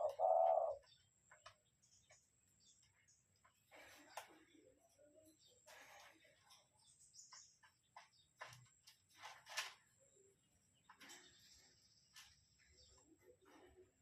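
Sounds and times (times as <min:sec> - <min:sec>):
faint clicks and rustles: 0:00.8 - 0:10.1.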